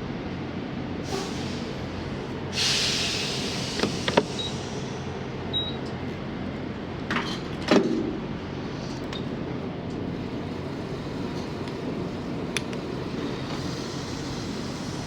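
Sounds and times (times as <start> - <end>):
air hissing: 1.0 - 5.3, 13.3 - 15.0.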